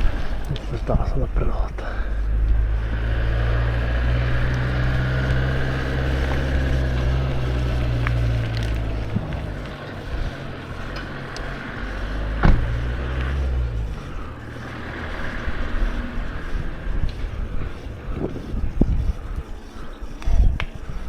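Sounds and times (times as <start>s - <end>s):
wind on microphone: 0.0s - 1.7s, 2.3s - 11.0s, 11.6s - 21.0s
mountain bike rattling: 0.0s - 21.0s.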